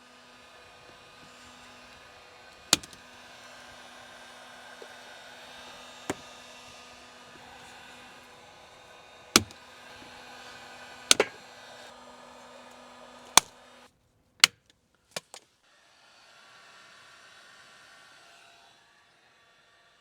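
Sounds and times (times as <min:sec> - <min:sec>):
electric blower hum: 0:00.0 - 0:13.9
sharp clicks: 0:02.7 - 0:03.0, 0:09.4 - 0:09.6.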